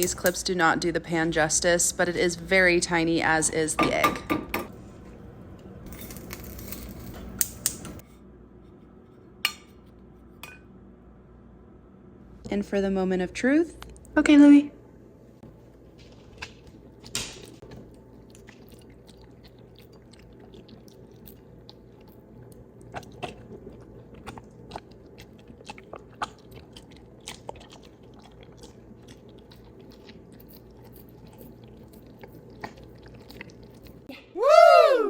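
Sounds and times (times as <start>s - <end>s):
dog chewing and eating: 16.0s - 34.1s.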